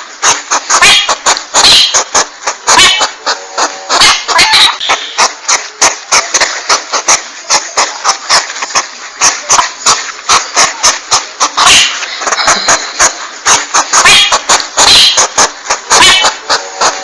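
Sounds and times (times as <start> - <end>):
steady hiss: 0.0 - 17.0
hedgehog huffing clicks: 0.2 - 17.0.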